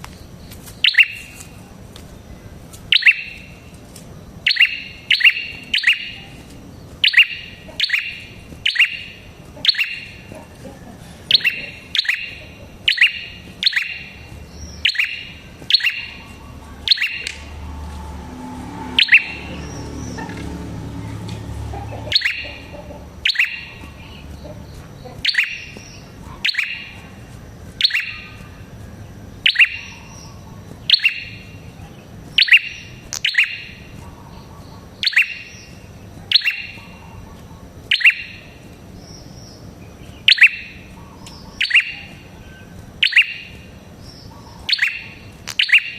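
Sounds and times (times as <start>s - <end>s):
songbird sharp call notes: 0.8s - 1.4s, 2.9s - 3.6s, 4.4s - 6.4s, 7.0s - 10.3s, 11.3s - 20.4s, 22.0s - 27.1s, 27.8s - 28.6s, 29.4s - 31.7s, 32.3s - 37.3s, 37.9s - 38.6s, 40.1s - 45.9s
low rumble: 16.1s - 22.1s.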